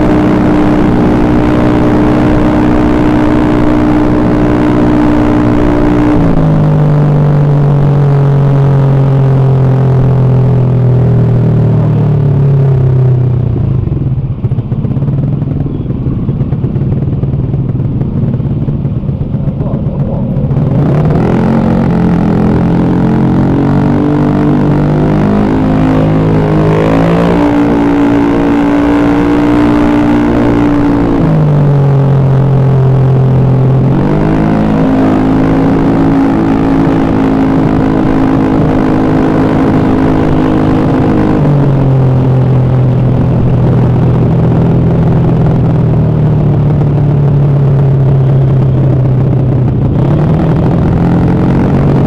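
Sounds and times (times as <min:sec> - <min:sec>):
scooter engine revving: 0:11.1 - 0:52.0.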